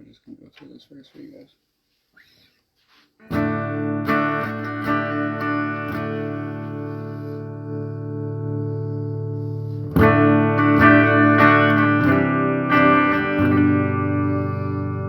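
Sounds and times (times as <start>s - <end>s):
electric guitar chords: 3.2s - 15.0s.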